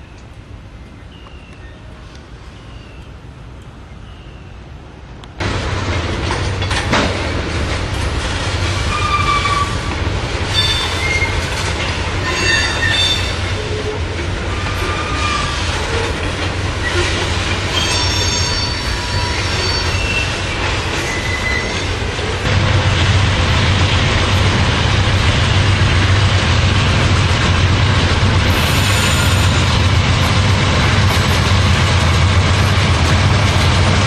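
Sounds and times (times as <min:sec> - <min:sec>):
train rumbling past: 0:00.0 - 0:34.0
train wheels squealing: 0:08.8 - 0:09.8, 0:10.5 - 0:11.6, 0:12.2 - 0:16.1, 0:16.8 - 0:22.0, 0:28.5 - 0:29.7.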